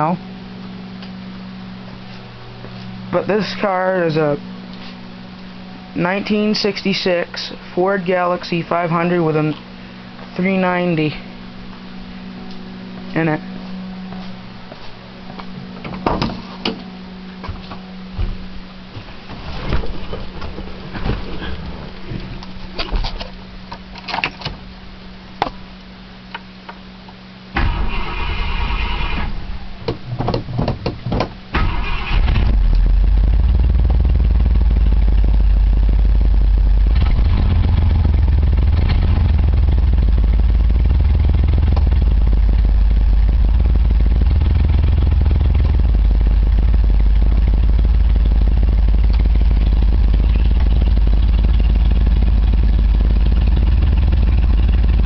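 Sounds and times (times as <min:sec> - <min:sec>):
car engine running: 0:00.0 - 0:25.7, 0:27.5 - 0:55.0
starter motor cranking: 0:27.6 - 0:29.4, 0:31.5 - 0:35.1.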